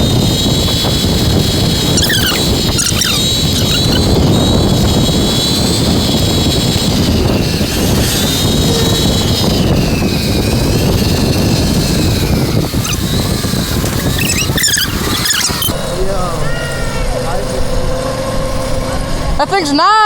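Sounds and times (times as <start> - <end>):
wind rush on microphone: 0.0 - 19.6
electric motorbike motor whining: 0.0 - 20.0.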